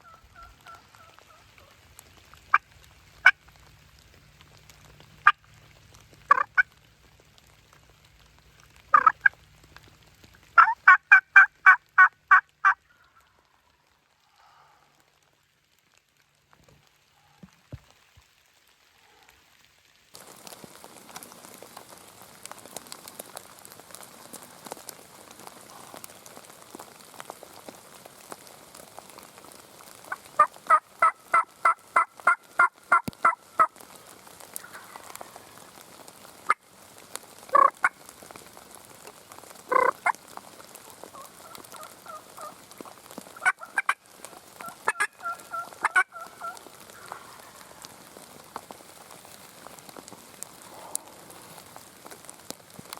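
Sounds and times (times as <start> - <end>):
turkey yelping: 0.0 - 1.7, 6.3 - 6.6, 8.9 - 9.4, 10.6 - 13.1, 37.5 - 37.9, 39.7 - 40.2, 41.1 - 42.6, 43.4 - 44.0, 44.6 - 47.6
steady rain: 0.0 - 52.9.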